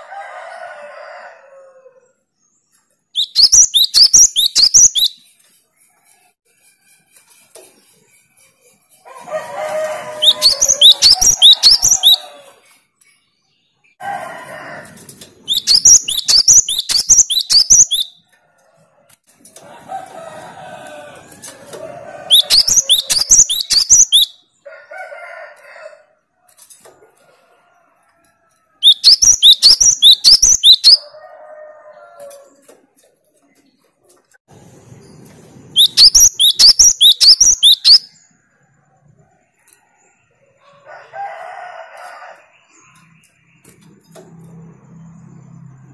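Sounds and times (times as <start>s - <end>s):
harsh chattering bird calls: 2.8s - 5.8s, 7.3s - 14.0s, 15.4s - 18.2s, 22.3s - 24.4s, 28.8s - 31.1s, 35.1s - 38.4s
bird singing high sweeping notes: 10.1s - 12.4s, 35.0s - 38.2s.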